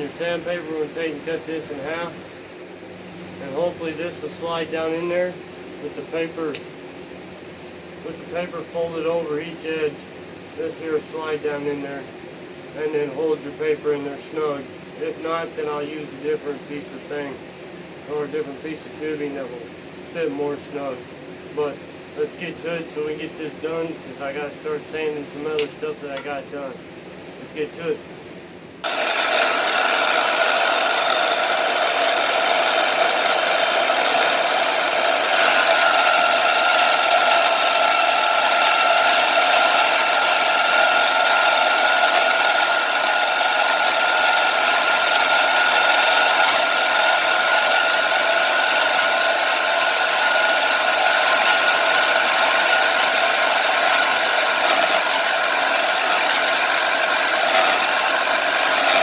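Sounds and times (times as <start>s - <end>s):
power tool cutting metal tubing: 28.8s - 59.0s.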